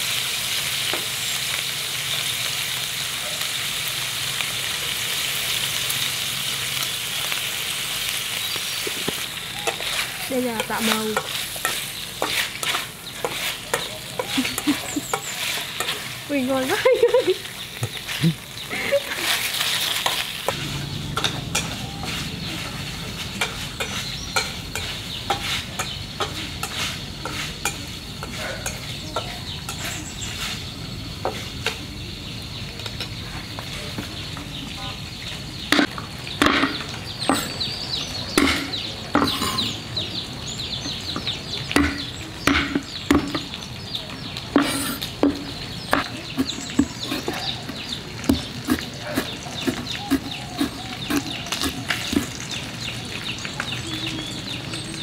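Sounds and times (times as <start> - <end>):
meat sizzling in a wok: 0.0 - 55.0
spatula scraping wok: 6.8 - 31.8, 35.7 - 39.9, 44.5 - 52.8.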